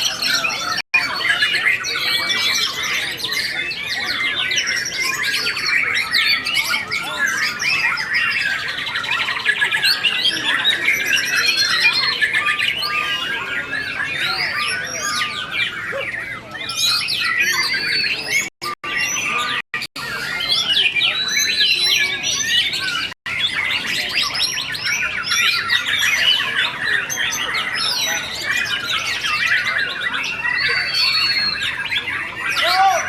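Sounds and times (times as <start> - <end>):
birds singing at once: 0.0 - 33.0.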